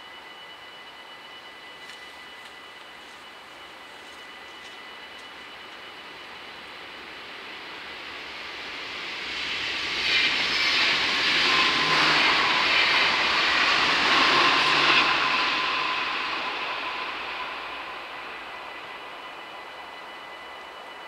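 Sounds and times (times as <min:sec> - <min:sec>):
train wheels rumbling on rails: 0:01.4 - 0:21.0.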